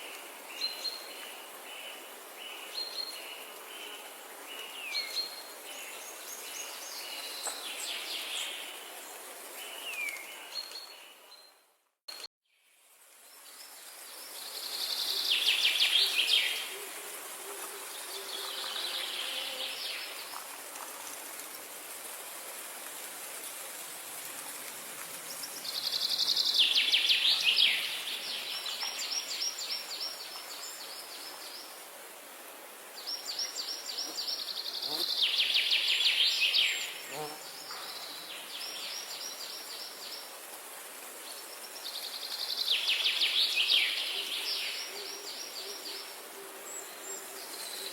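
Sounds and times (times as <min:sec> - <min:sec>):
steady background hiss: 0:12.7 - 0:47.9.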